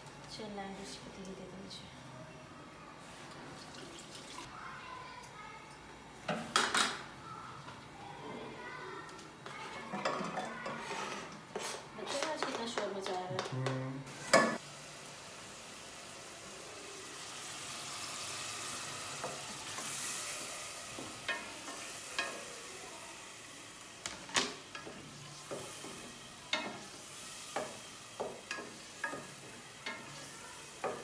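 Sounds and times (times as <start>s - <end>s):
tomato slices sizzling: 13.5s - 31.0s.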